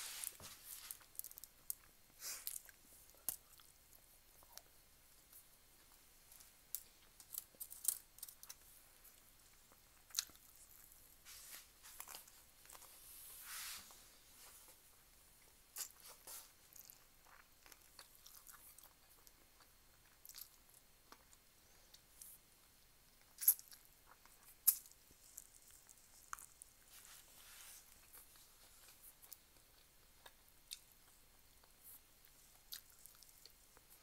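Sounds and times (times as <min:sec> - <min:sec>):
chewing with wet mouth clicks: 0:28.8 - 0:34.0.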